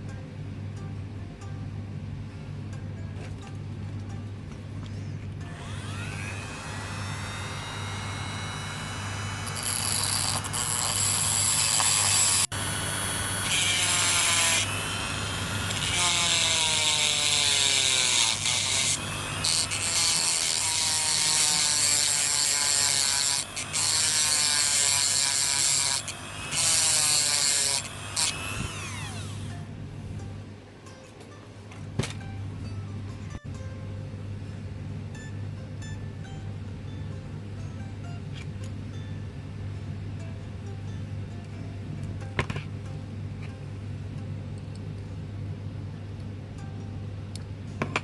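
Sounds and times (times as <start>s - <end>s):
tool cutting metal hiss: 5.7s - 29.5s.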